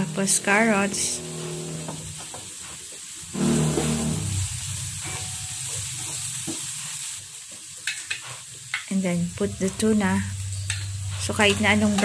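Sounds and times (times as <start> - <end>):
vegetables sizzling in oil: 0.0 - 12.0
spatula stirring in a pan: 5.0 - 12.0.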